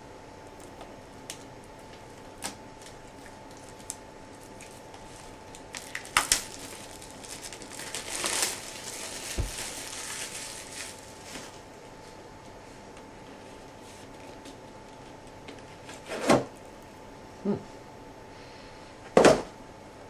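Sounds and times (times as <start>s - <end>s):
plastic crinkling: 0.6s - 11.7s
plastic snapping: 5.6s - 6.7s.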